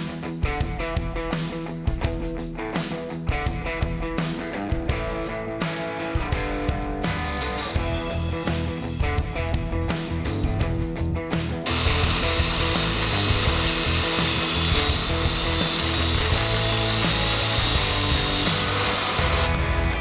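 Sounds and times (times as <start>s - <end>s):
guitar background music: 0.0s - 20.0s
power tool running: 6.5s - 20.0s.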